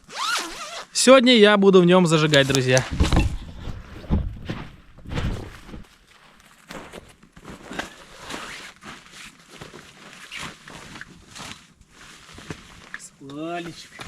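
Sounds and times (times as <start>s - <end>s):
sleeping bag rustling: 2.4s - 14.0s.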